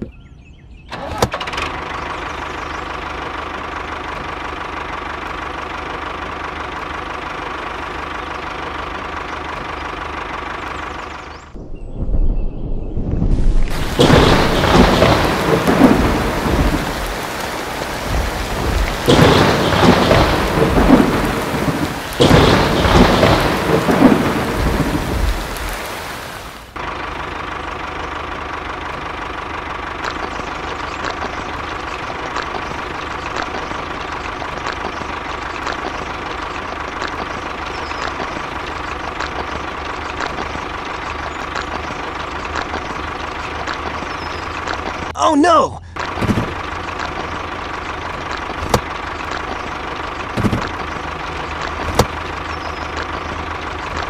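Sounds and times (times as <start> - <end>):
model tractor engine humming: 0.9 - 11.5, 26.7 - 45.1, 45.9 - 54.0
thunder rolling: 11.6 - 26.5
steady rain: 13.2 - 54.0.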